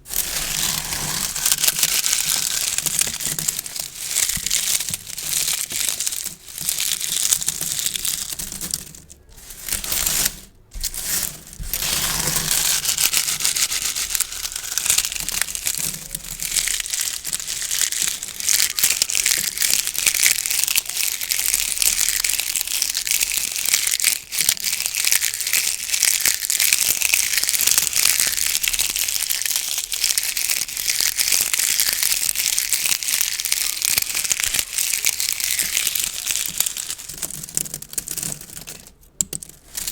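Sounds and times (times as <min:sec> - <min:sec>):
gift ribbon crinkling: 0:00.0 - 0:39.9.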